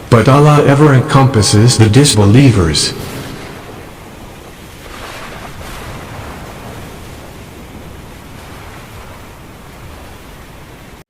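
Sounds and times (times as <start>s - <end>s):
rainstorm rushing: 0.0s - 11.0s.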